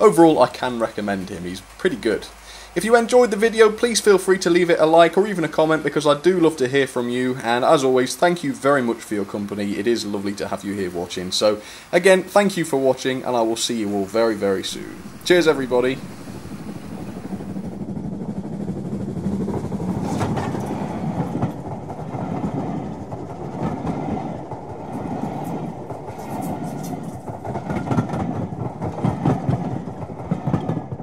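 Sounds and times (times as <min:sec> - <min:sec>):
wheels clicking over rail joints: 0:00.0 - 0:31.0
wheels rumbling on track: 0:12.6 - 0:31.0.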